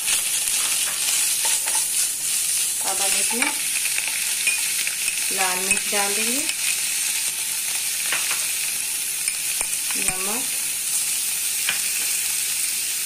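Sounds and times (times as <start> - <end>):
ghee sizzling in a pan: 0.0 - 13.0.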